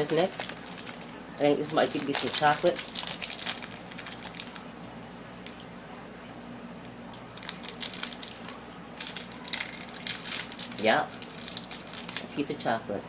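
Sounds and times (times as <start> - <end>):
plastic wrapper crinkling: 0.0 - 4.7, 7.1 - 12.6.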